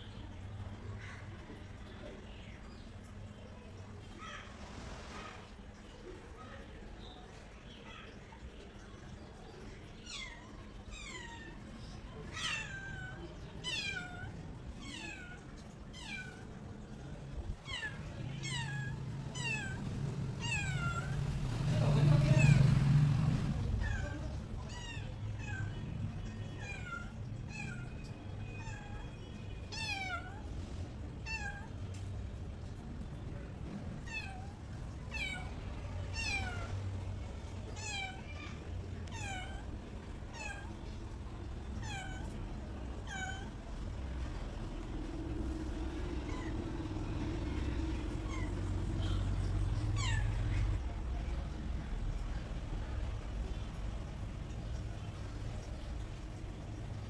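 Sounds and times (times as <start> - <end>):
cat meowing: 10.0 - 16.9, 17.5 - 30.5, 31.2 - 31.9, 33.9 - 41.0, 41.7 - 52.8
low background rumble: 10.9 - 57.0.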